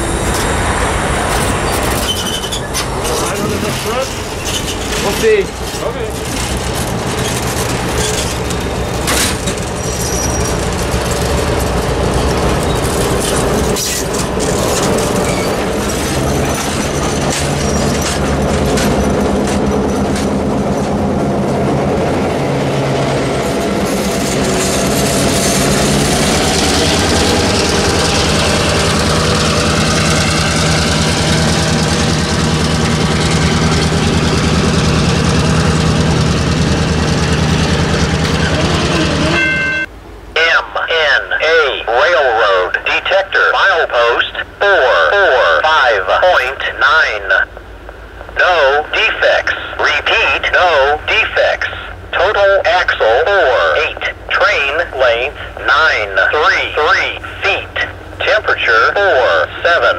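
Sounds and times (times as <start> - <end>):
train wheels clicking over rail joints: 0.0 - 39.6
diesel engine drone: 0.0 - 59.9
faint wheel squeal: 1.6 - 3.5, 4.3 - 5.2, 9.8 - 10.7, 15.2 - 15.7.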